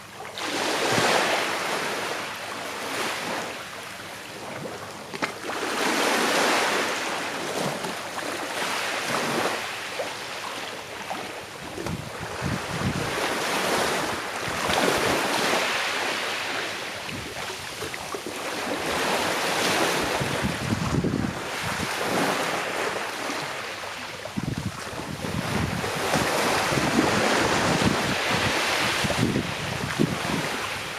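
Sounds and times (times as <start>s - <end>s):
sea waves washing on shore: 0.0s - 30.9s
wind on microphone: 11.6s - 15.7s, 17.0s - 18.0s, 18.8s - 22.7s, 24.2s - 30.9s.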